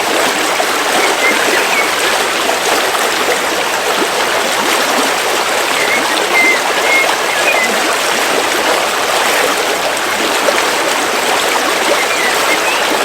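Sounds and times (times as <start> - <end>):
river water flowing: 0.0 - 13.0
high bird chirps: 0.9 - 2.1, 5.6 - 7.8, 11.9 - 13.0.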